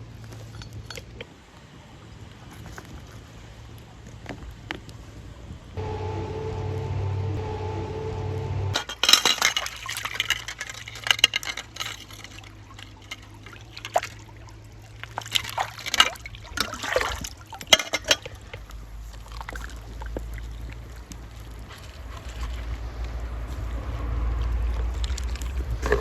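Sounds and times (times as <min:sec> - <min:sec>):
water splashing in a container: 0:08.8 - 0:26.0.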